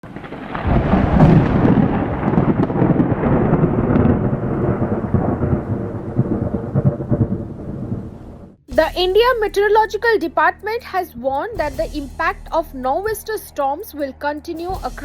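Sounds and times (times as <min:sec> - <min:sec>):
rain: 0:00.0 - 0:08.6
thunder rumbling: 0:00.0 - 0:15.0.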